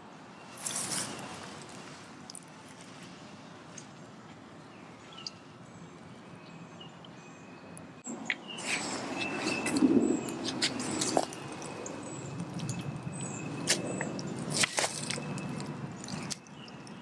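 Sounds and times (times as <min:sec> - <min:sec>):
rustling: 0:00.6 - 0:03.2.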